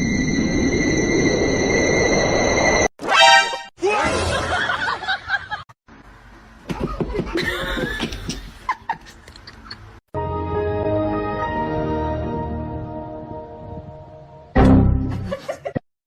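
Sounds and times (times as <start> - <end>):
people laughing: 4.1 - 5.6, 6.7 - 9.9
background music with held tones: 10.2 - 15.2.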